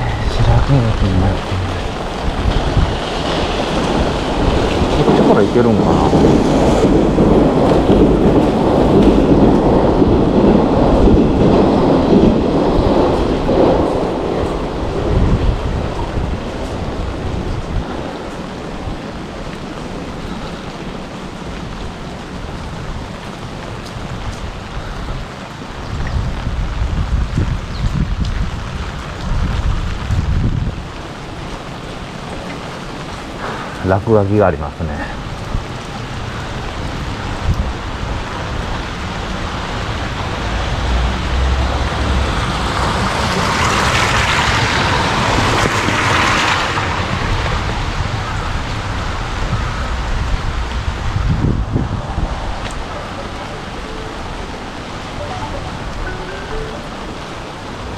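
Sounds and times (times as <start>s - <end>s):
wind rumble on microphone: 0.0s - 34.1s, 35.0s - 56.0s
heavy rain falling: 0.0s - 57.9s
tyre spray on wet road: 35.2s - 51.7s.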